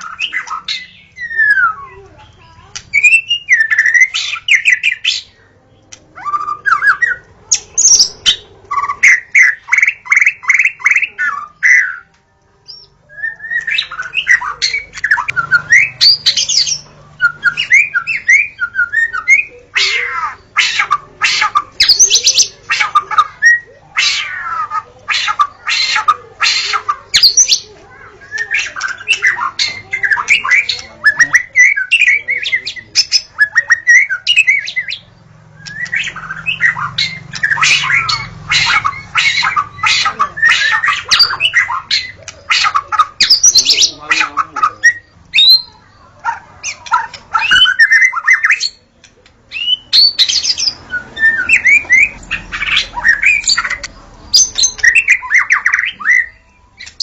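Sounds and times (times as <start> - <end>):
bird singing whistles: 2.9 - 5.2, 12.7 - 19.5, 47.4 - 48.8, 49.5 - 53.7.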